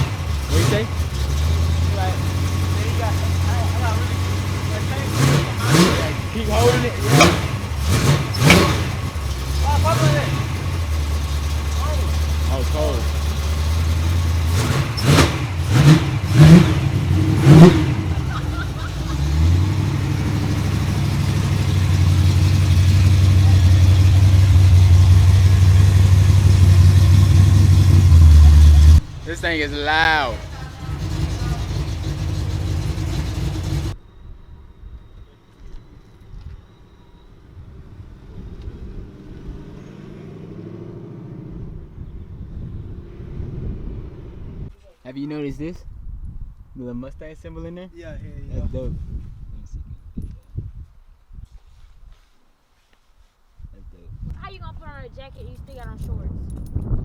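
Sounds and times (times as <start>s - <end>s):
car engine revving and idling: 0.0s - 34.0s, 37.5s - 44.7s.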